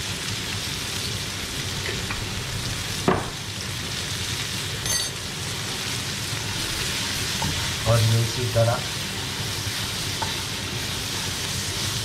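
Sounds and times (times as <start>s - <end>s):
butter sizzling in a frying pan: 0.0s - 12.0s
light metallic clink: 4.8s - 5.2s.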